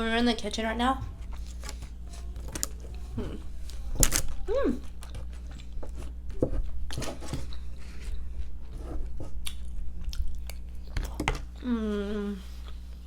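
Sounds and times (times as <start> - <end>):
food crunching: 1.2 - 11.6
person chewing food: 1.2 - 11.7.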